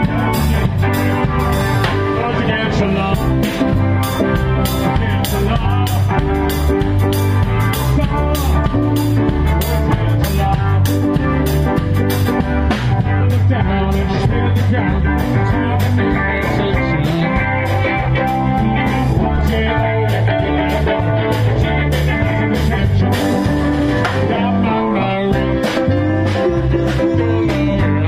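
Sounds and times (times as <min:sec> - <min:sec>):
blues-rock band music: 0:00.0 - 0:28.0.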